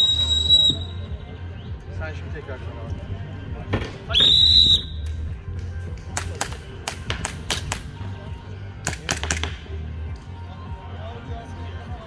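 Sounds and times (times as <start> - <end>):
whistle blast: 0.0 - 1.3, 4.1 - 5.0
background music: 0.0 - 12.0.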